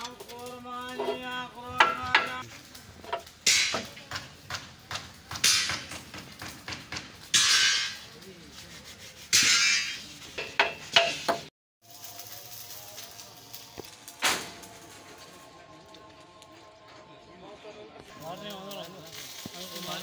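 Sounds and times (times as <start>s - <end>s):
hand tools knocking on metal and wood: 1.0s - 2.4s, 3.1s - 8.0s, 10.4s - 11.5s.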